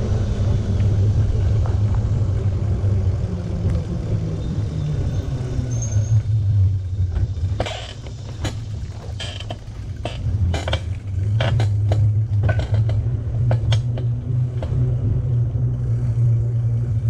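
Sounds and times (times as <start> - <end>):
low rumble: 0.0 - 17.0
sharp clicks and rattles: 7.1 - 14.8.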